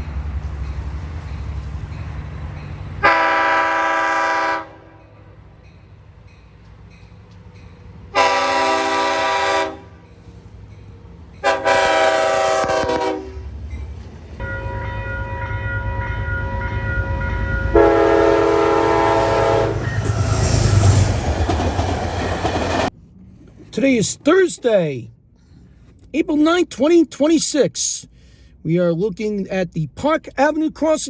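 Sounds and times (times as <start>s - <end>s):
train rumbling past: 0.0s - 26.0s
train horn blasts: 3.0s - 5.3s, 8.1s - 10.0s, 11.4s - 13.5s, 14.4s - 21.0s.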